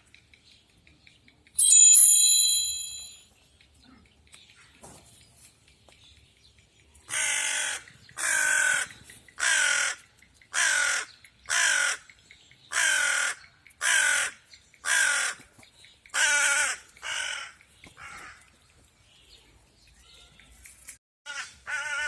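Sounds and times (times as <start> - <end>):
crow cawing: 7.1 - 12.1, 12.7 - 15.4, 16.2 - 18.5, 21.3 - 22.0.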